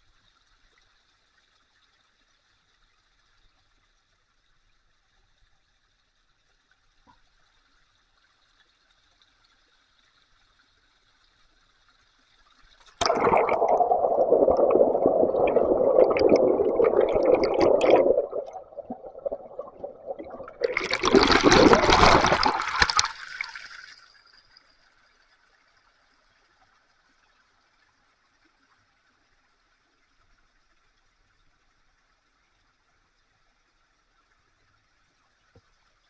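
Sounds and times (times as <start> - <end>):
water rushing and splashing: 13.0 - 23.7.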